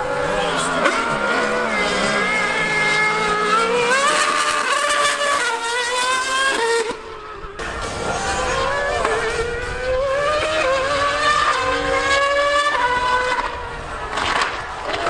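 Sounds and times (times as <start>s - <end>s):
high-revving racing engine: 0.0s - 15.0s.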